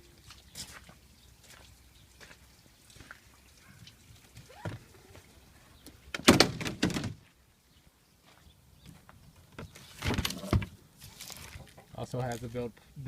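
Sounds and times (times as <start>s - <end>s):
loud knocks and thuds: 6.2s - 7.2s.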